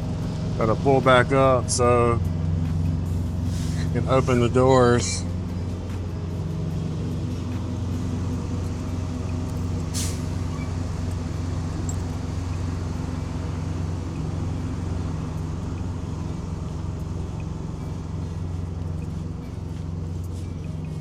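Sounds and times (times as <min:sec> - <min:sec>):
diesel truck engine running: 0:00.0 - 0:21.0
air brakes hissing: 0:03.2 - 0:04.5, 0:07.8 - 0:21.0.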